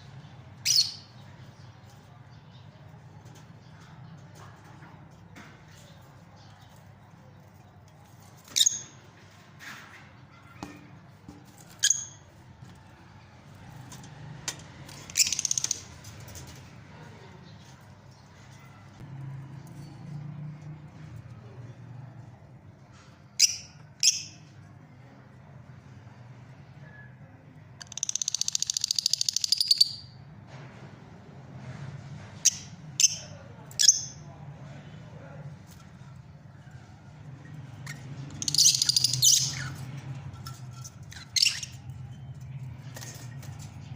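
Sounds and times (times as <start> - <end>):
lovebirds chirping: 0.6 - 2.9, 37.8 - 40.0.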